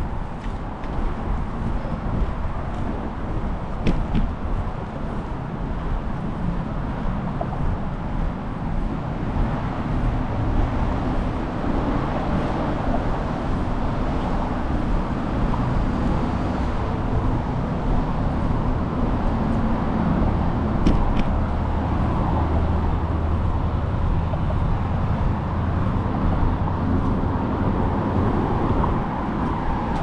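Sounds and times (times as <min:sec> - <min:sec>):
road traffic noise: 0:00.0 - 0:30.0
wind rumble on microphone: 0:00.0 - 0:30.0.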